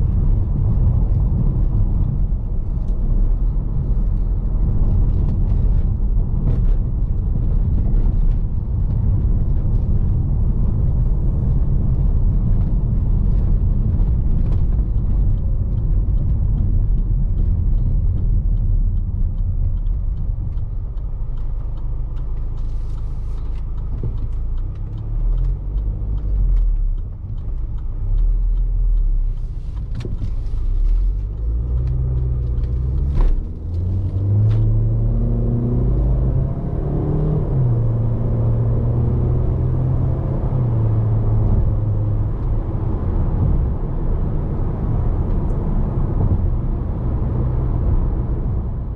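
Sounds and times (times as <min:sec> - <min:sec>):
car engine accelerating: 0:00.0 - 0:48.9.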